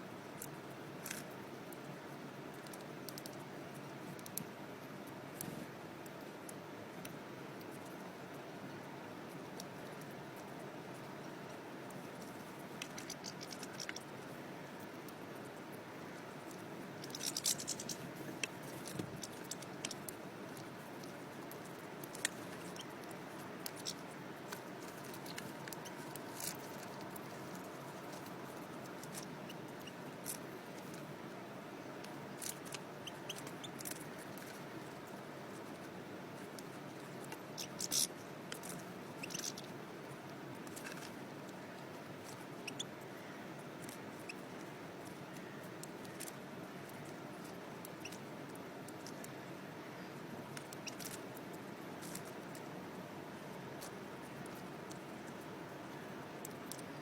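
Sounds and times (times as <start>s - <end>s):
steady low hiss: 0.0s - 57.0s
beaks cracking seeds: 16.5s - 31.1s.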